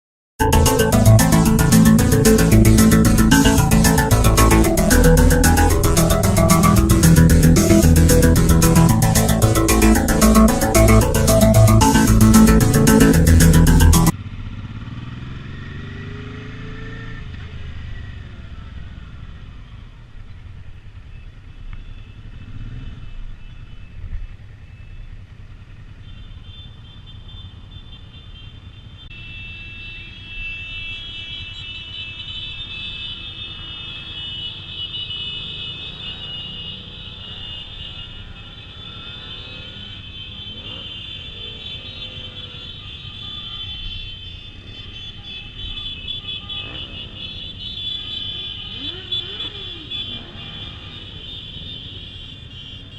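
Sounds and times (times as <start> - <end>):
high whine: 0.4 - 14.1
motorcycle engines rumbling: 0.5 - 27.7, 35.4 - 52.9.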